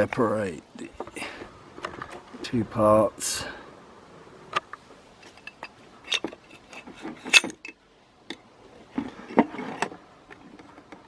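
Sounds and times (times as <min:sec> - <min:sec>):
metal clinks and knocks: 0:05.2 - 0:11.0.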